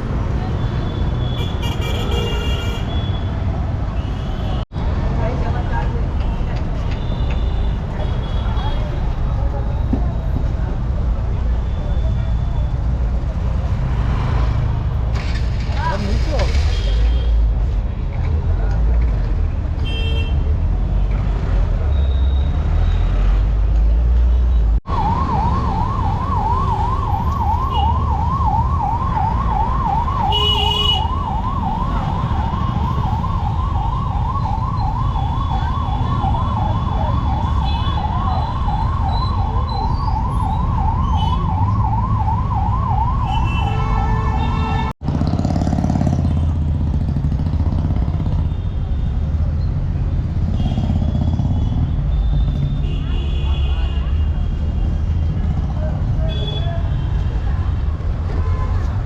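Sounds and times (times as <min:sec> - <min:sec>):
street traffic rumble: 0:00.0 - 0:59.0
emergency siren wailing: 0:24.8 - 0:44.8.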